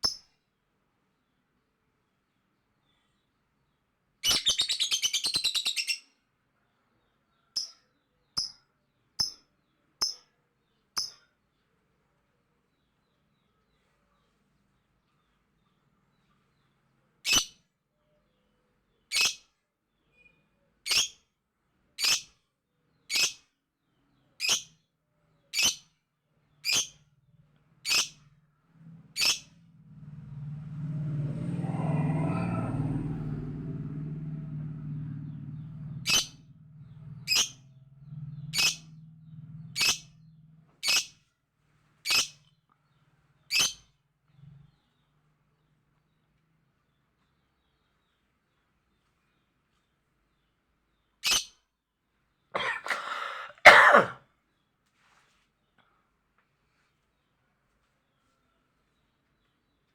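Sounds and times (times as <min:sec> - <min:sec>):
lovebird chirping: 0:00.0 - 0:00.3, 0:04.2 - 0:06.1, 0:29.1 - 0:29.6, 0:35.5 - 0:39.0
low rumbling noise: 0:28.5 - 0:40.7.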